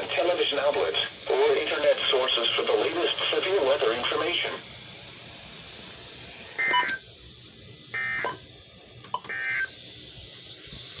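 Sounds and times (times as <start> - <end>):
radio hiss: 0.0 - 7.2.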